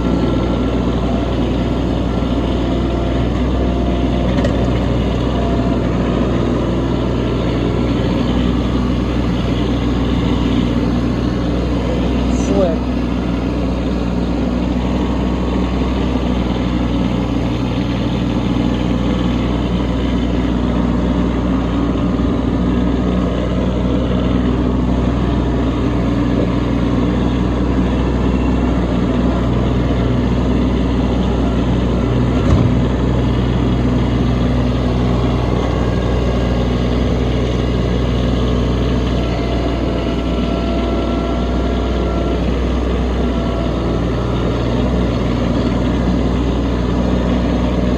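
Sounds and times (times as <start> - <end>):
tractor diesel engine running: 0.0 - 47.9
short knock: 32.4 - 33.0.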